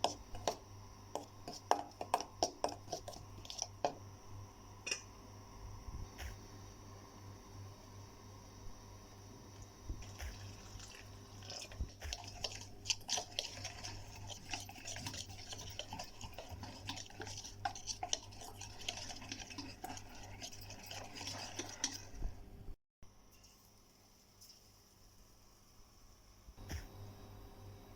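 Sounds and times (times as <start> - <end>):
spoon scraping in mixing bowl: 0.0 - 4.0, 10.0 - 22.4.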